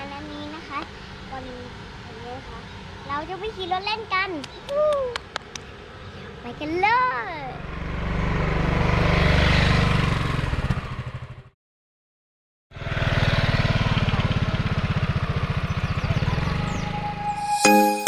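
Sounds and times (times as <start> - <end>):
small motorcycle engine running: 7.5 - 11.5, 12.7 - 17.2.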